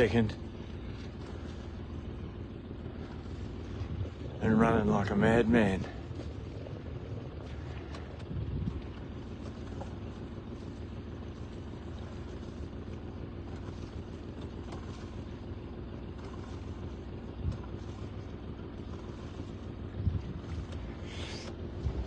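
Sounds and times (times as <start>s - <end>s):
boat engine idling: 0.0s - 22.0s
water noise: 0.0s - 22.0s
wind noise: 8.1s - 9.1s, 19.9s - 20.8s.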